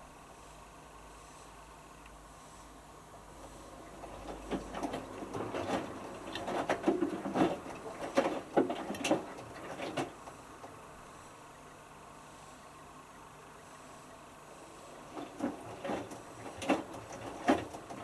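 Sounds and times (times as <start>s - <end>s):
water swishing in washing machine: 3.2s - 11.0s, 14.4s - 18.0s.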